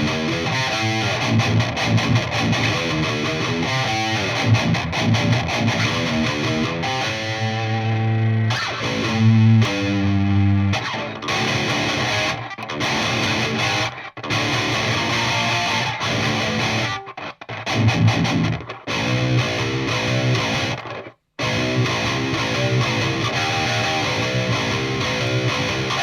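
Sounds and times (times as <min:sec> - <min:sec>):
distorted electric guitar riffs: 0:00.0 - 0:26.0.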